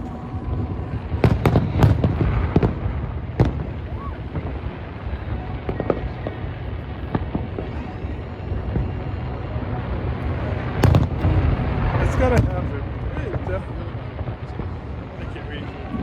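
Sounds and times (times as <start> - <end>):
faint fireworks pops: 0.0 - 9.1, 10.7 - 13.5
fireworks bangs: 0.0 - 9.1, 10.2 - 16.0
low rumble: 0.0 - 16.0.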